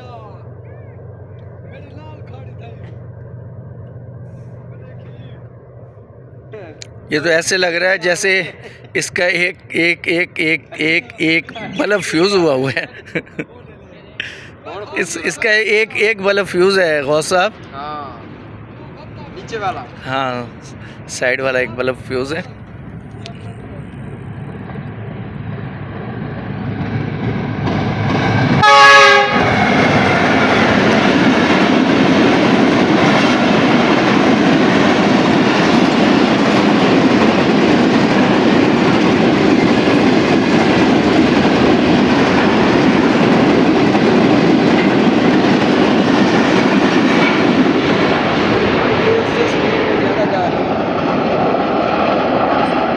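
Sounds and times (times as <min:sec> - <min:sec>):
train wheels on rails: 0:14.2 - 0:52.9
train horn blast: 0:28.6 - 0:29.8.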